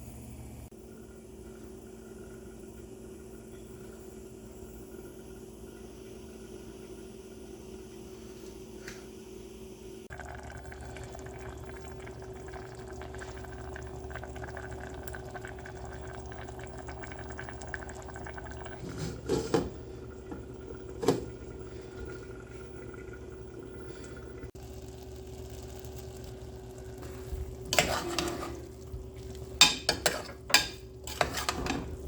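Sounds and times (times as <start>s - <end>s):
pot of food bubbling: 10.1s - 32.0s
cookware clattering: 27.7s - 28.8s, 29.4s - 32.0s.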